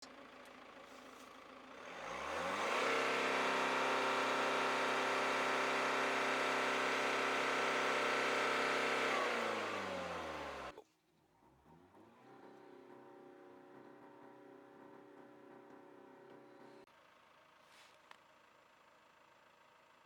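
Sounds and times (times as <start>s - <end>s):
diesel engine revving: 1.7s - 10.8s.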